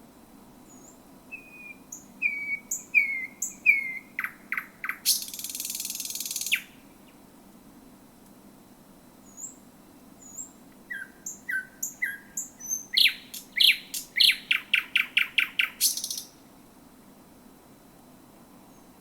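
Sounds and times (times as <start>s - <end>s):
nightingale singing: 0.6s - 7.2s, 9.2s - 9.6s, 10.2s - 16.4s.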